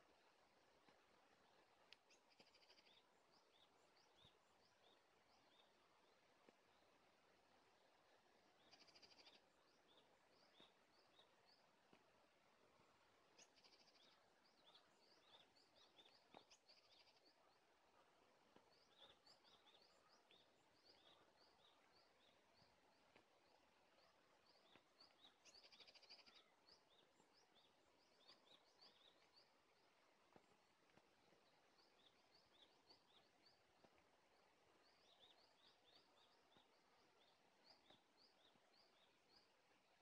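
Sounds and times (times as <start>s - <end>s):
birds chirping: 0.0s - 40.0s
bird trills: 2.1s - 3.0s, 8.6s - 9.4s, 25.2s - 26.5s.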